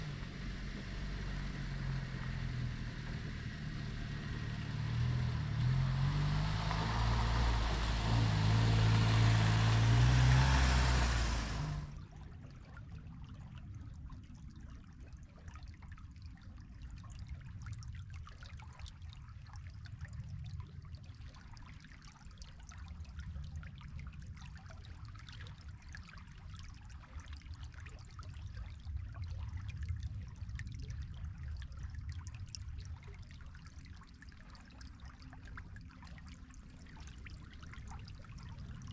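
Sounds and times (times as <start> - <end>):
vehicle engine running: 0.0 - 12.0
river trickling: 0.0 - 12.3, 24.2 - 38.9.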